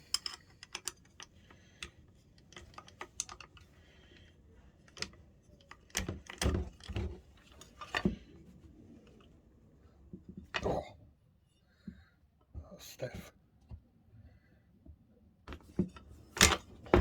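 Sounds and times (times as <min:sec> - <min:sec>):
light clicks and taps of tools: 0:00.0 - 0:08.4, 0:14.8 - 0:17.0.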